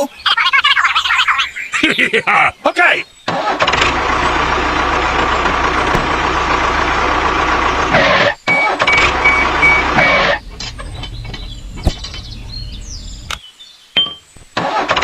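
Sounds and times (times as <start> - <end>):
high beeping: 8.5 - 11.0.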